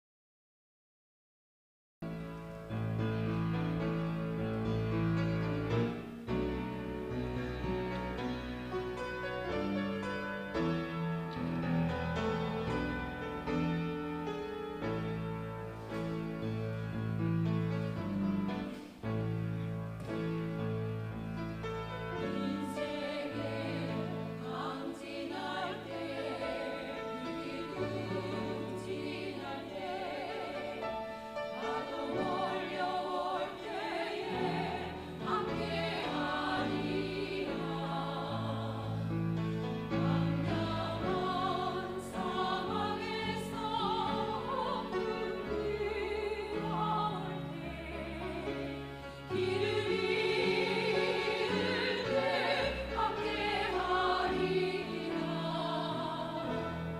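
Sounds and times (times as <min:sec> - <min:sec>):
instrumental accompaniment: 0:02.1 - 0:56.9
vocal ensemble singing gospel: 0:21.6 - 0:56.9.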